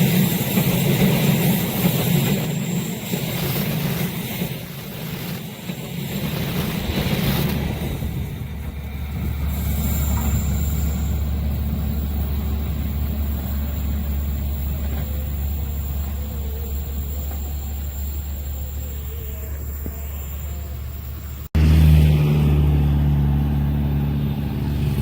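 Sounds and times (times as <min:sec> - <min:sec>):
train wheels rumbling on rail: 0:00.0 - 0:21.5
faint wheel squeal: 0:09.4 - 0:21.5.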